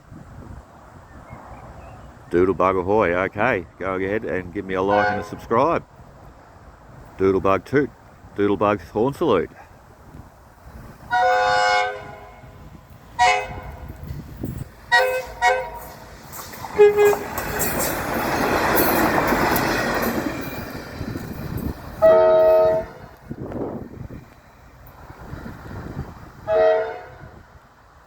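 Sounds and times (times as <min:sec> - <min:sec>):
railcar passing close: 0:00.0 - 0:28.0
train multi-tone horn: 0:04.9 - 0:05.5, 0:11.1 - 0:14.0, 0:14.9 - 0:16.0, 0:16.6 - 0:17.9, 0:22.0 - 0:23.2, 0:26.4 - 0:27.5.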